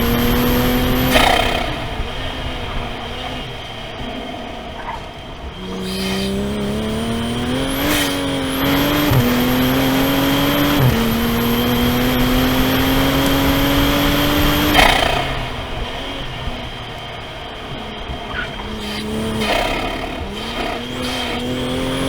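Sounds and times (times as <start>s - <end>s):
car engine accelerating: 0.0s - 22.0s
faint high whine: 5.4s - 22.0s.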